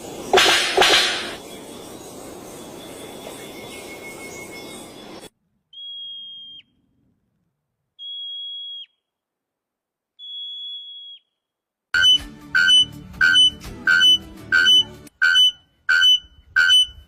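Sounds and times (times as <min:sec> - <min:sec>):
bird whistling call: 0:05.8 - 0:06.7, 0:08.0 - 0:09.0.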